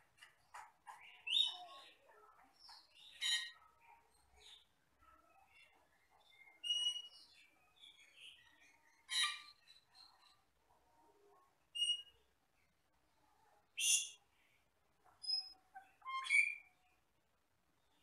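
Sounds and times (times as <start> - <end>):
starling whistles and harsh chirps: 16.1 - 16.6.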